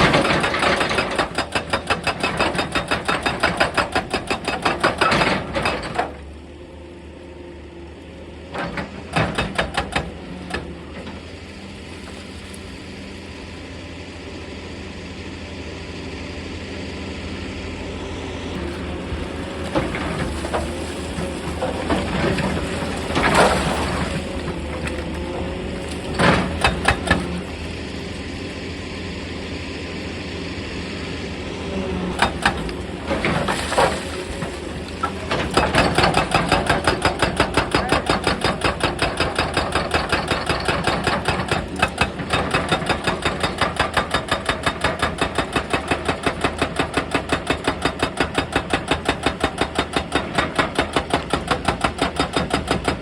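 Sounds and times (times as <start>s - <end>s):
hydraulic breaker hammer pounding: 0.0s - 6.2s, 8.6s - 10.7s, 18.7s - 27.6s, 32.2s - 53.0s
excavator diesel engine running: 0.0s - 53.0s.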